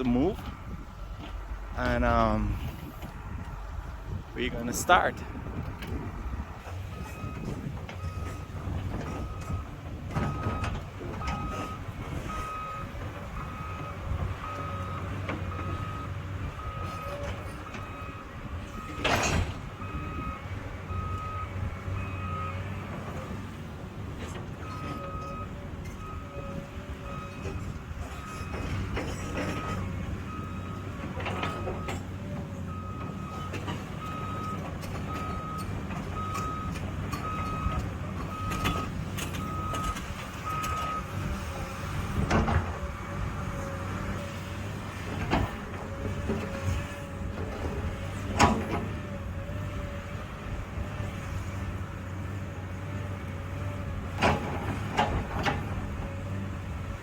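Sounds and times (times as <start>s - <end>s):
excavator diesel engine running: 0.0s - 57.0s
travel alarm beeping: 19.9s - 22.6s, 32.7s - 41.1s.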